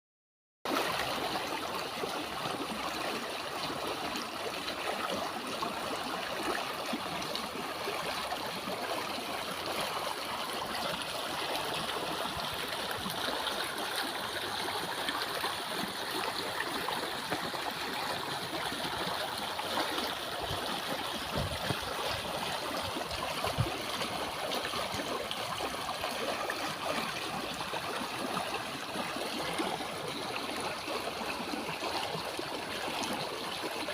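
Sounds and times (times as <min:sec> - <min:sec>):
floodwater rushing and gurgling: 0:00.7 - 0:33.9.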